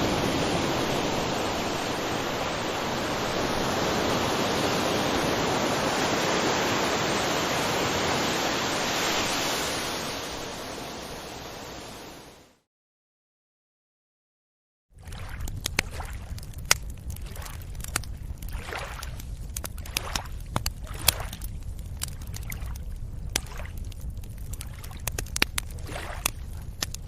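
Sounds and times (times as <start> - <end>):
ocean waves breaking on beach: 0.0 - 12.6.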